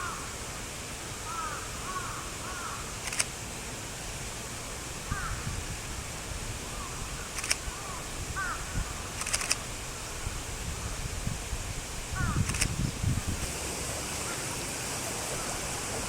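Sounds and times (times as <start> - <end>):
sharp clicks: 3.0 - 3.3, 7.4 - 7.6, 9.2 - 9.6, 12.4 - 12.7.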